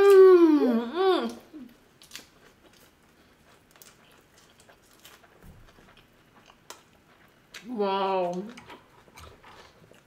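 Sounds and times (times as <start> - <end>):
person humming: 0.0 - 1.7
people chewing: 1.1 - 10.0.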